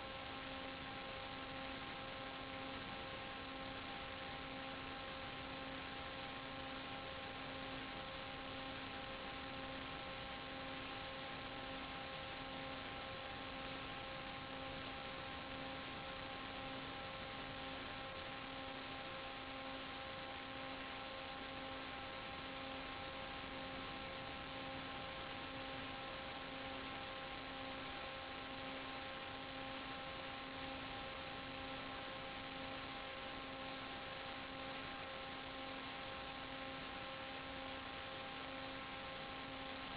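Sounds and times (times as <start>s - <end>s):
constant hiss: 0.0s - 39.9s
electrical hum: 0.0s - 39.9s.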